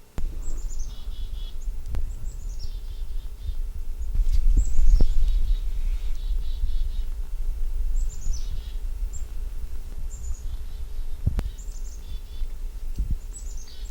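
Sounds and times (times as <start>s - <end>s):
chickadee calling: 0.0s - 7.2s, 10.1s - 12.6s
steady low rumble: 0.0s - 13.9s.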